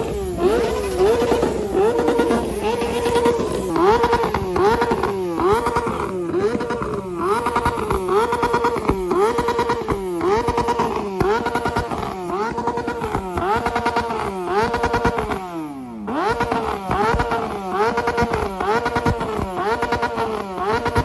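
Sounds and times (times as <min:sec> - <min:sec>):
motorcycle engine at high revs: 0:00.0 - 0:21.0.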